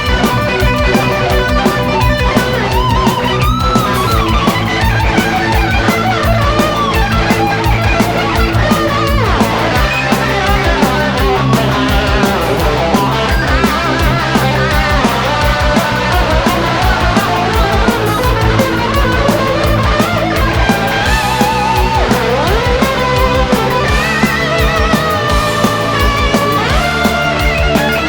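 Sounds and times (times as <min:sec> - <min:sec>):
bass: 0:00.0 - 0:28.0
lead electric guitar: 0:00.0 - 0:28.0
steady drum beat: 0:00.0 - 0:28.0.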